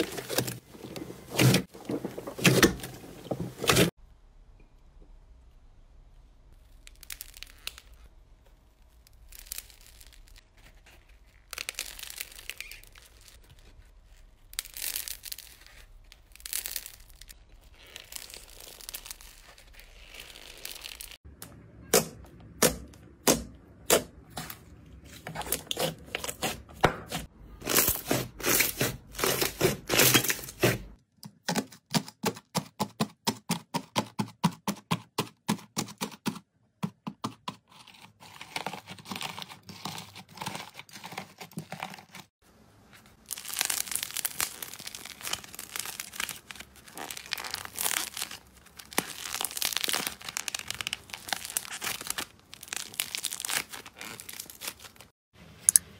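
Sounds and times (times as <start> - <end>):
slime crinkling and popping: 6.6 - 21.2, 43.1 - 55.1.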